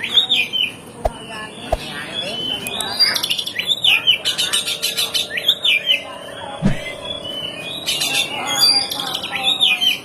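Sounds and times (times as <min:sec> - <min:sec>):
songbird chirps and trills: 0:00.0 - 0:10.0.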